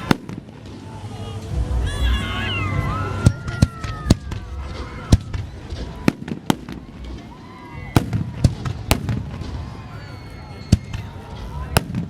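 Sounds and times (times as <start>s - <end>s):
fireworks bangs: 0.0s - 12.0s
low rumble: 0.5s - 6.1s.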